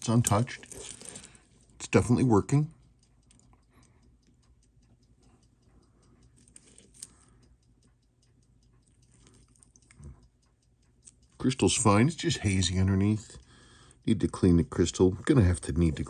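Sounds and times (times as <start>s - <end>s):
clock ticking: 0.0s - 16.0s
click: 2.7s - 11.9s.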